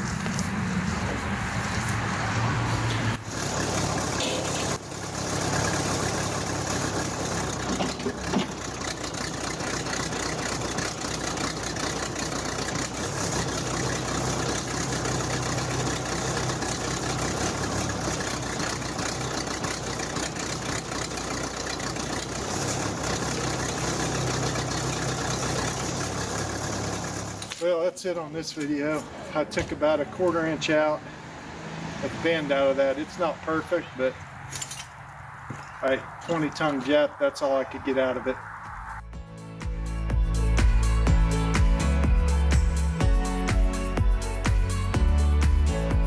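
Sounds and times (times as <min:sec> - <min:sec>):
backhoe engine idling: 0:03.0 - 0:27.6.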